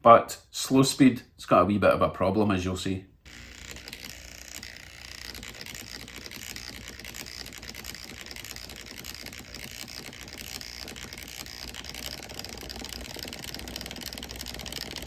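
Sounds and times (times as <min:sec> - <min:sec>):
fine rapid clicking: 0:03.2 - 0:15.0
model locomotive motor whirring: 0:03.2 - 0:15.0.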